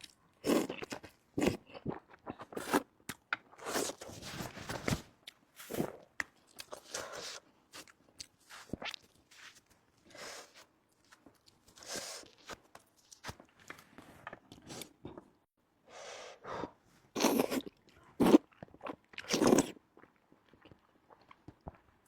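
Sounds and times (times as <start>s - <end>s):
chewing and crunching: 5.2s - 15.3s.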